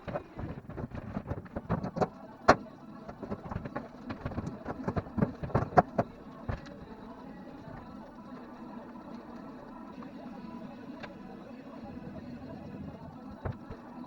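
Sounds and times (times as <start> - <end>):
irregular knocks and clatters: 0.0 - 7.0, 13.3 - 13.9
faint steady hum: 0.0 - 14.0.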